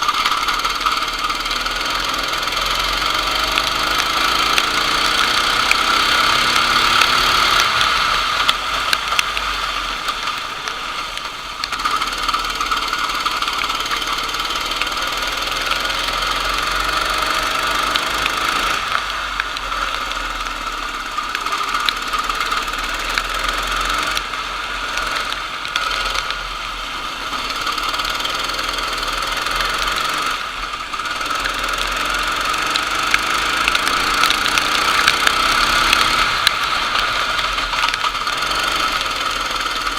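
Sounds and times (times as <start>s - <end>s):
racing kart engine: 0.0s - 39.9s.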